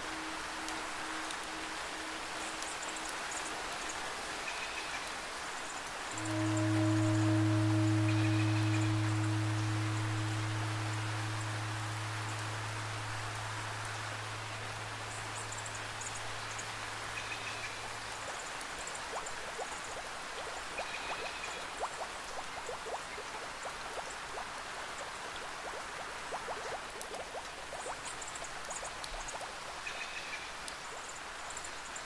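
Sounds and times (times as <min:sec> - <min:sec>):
low drone note: 0:00.0 - 0:03.8, 0:06.1 - 0:18.2
steady rain: 0:00.0 - 0:32.0
water drops plinking: 0:06.1 - 0:14.0, 0:18.3 - 0:30.0.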